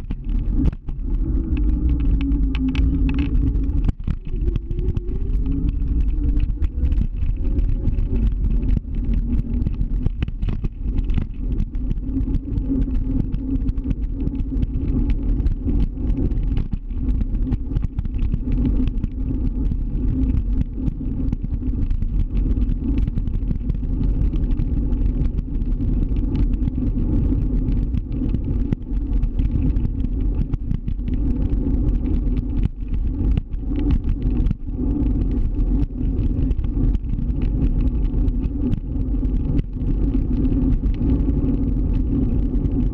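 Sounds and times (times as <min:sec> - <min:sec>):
scooter engine rumble: 0:00.0 - 0:10.1
small clicks and knocks: 0:00.0 - 0:42.8.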